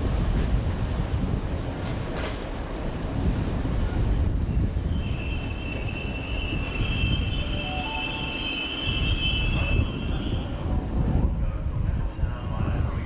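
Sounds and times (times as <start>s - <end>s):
train rumbling on track: 0.0s - 13.0s
metallic wheel squeal: 4.9s - 10.3s.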